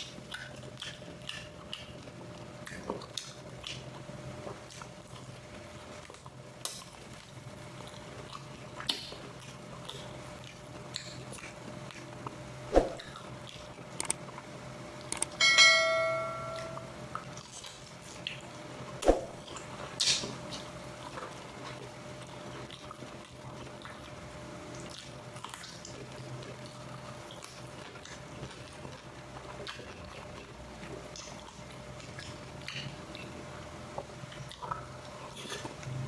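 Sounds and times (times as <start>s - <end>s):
ringing clink: 15.3s - 17.0s.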